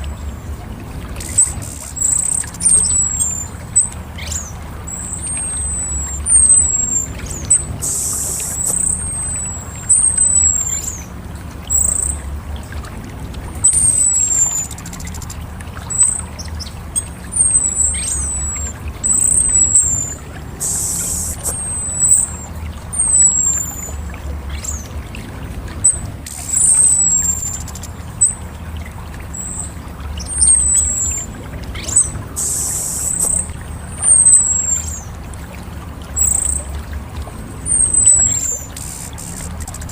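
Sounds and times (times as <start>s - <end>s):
steady low hum: 0.0s - 39.9s
thrush calling high thin notes: 1.2s - 11.1s, 17.4s - 24.0s, 30.4s - 35.1s
rough hissing bird bursts: 7.8s - 8.7s, 20.6s - 21.6s, 32.4s - 33.2s.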